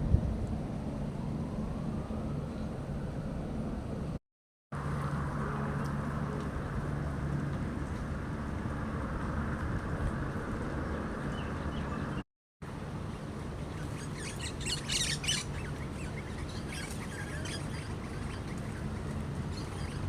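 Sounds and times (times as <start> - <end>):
low outdoor rush: 4.8 - 20.0
small birds chirping: 13.4 - 20.0.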